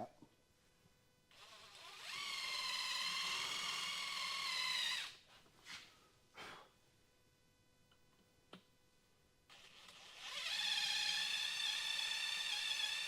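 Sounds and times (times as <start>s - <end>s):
power drill whining: 1.3s - 5.2s, 9.5s - 13.0s.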